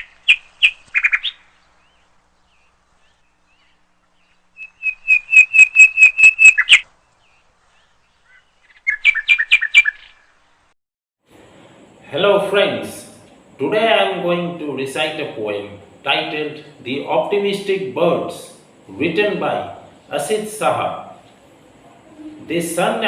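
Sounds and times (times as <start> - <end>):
bird chirping: 0.0 - 10.5.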